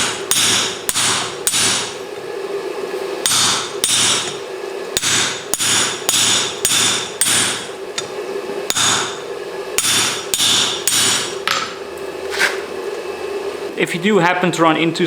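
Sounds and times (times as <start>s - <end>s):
hammer striking steel on anvil: 0.0s - 2.0s, 3.2s - 4.4s, 5.0s - 9.2s, 9.8s - 11.8s.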